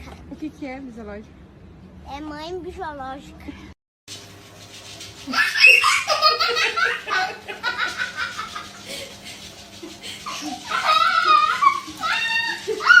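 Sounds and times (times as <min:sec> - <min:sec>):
laughter: 0:05.3 - 0:13.0.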